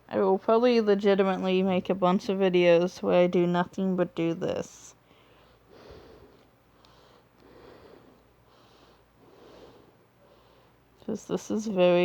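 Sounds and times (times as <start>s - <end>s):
soft breathing: 4.9s - 11.1s.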